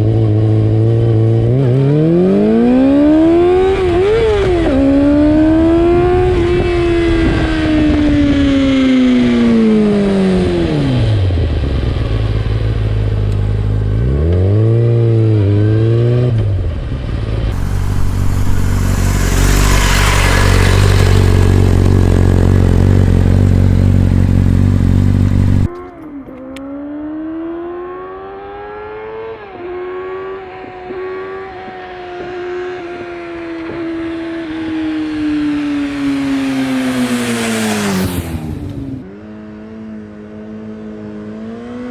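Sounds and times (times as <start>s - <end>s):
motorcycle engine revving: 17.6s - 25.8s.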